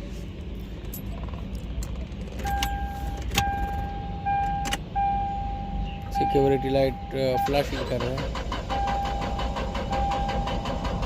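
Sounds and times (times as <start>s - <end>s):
low steady rumble: 0.0s - 11.0s
car electronic warning tone: 2.4s - 10.7s.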